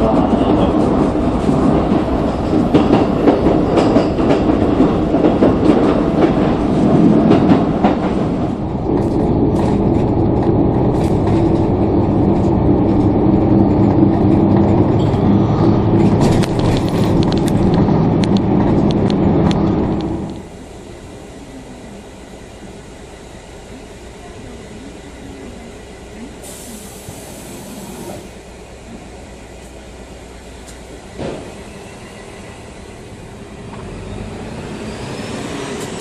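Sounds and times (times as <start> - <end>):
train running hum: 0.0 - 36.0
train wheels clicking over rail joints: 0.1 - 20.5.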